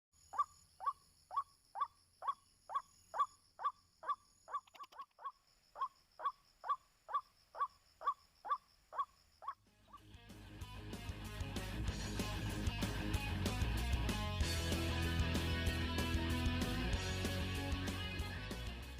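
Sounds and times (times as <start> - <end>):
bird calling sharp kwak notes: 0.2 - 10.0
music: 9.7 - 18.9.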